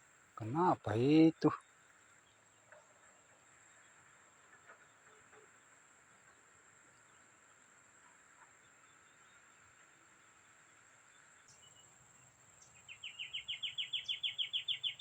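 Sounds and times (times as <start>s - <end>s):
faint ticks: 2.6s - 7.2s.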